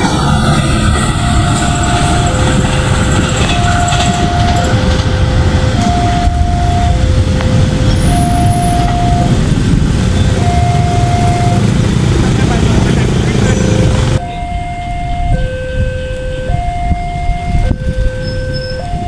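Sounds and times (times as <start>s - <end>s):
two-tone crossing alarm: 0.0s - 9.5s, 10.1s - 12.1s, 13.6s - 19.0s
train wheels rumbling on rail: 0.0s - 14.3s.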